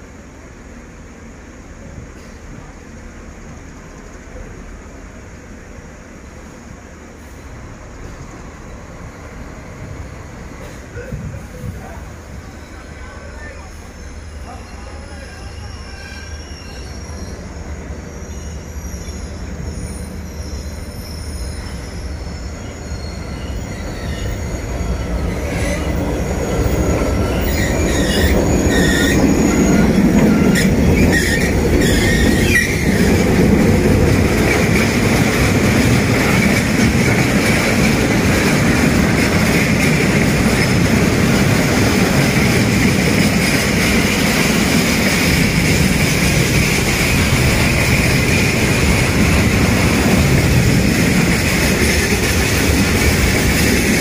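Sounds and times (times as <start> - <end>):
diesel locomotive passing: 0.0 - 54.0
freight wagons rumbling: 7.5 - 54.0
high wheel squeal: 12.3 - 54.0.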